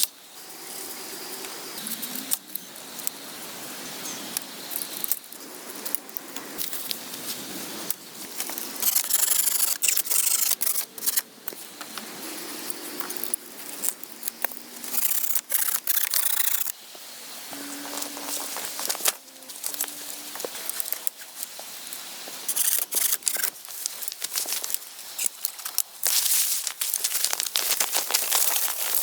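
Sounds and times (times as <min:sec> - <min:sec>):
scraping and rubbing strokes: 0:08.4 - 0:11.2.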